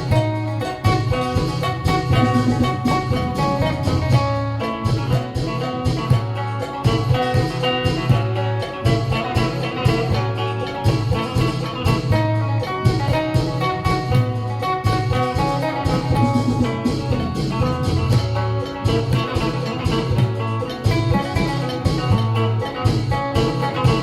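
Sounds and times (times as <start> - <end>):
drum beat: 0.0 - 24.0
low bass line: 0.0 - 24.0
plucked lute melody: 0.0 - 24.0.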